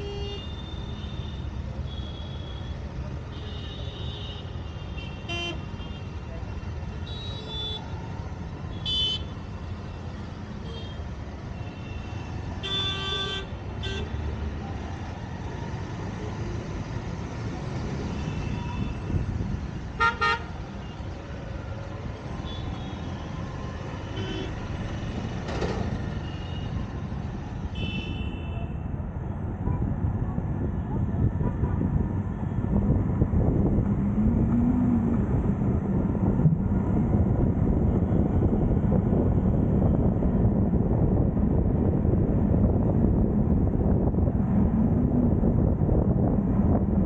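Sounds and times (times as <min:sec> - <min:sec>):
traffic rumble: 0:00.0 - 0:47.0
vehicle horns honking: 0:03.4 - 0:06.0, 0:20.0 - 0:20.5, 0:24.0 - 0:24.6.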